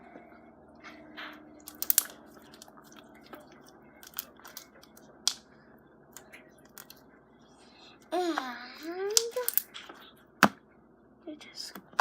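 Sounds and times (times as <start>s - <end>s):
slime popping and clicking: 1.7s - 2.7s.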